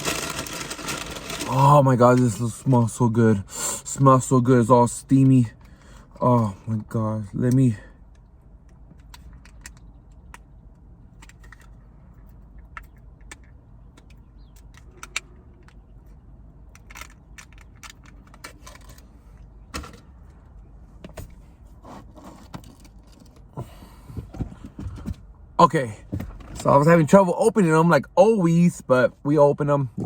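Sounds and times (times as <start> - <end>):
food packaging crinkling: 0.0 - 1.6.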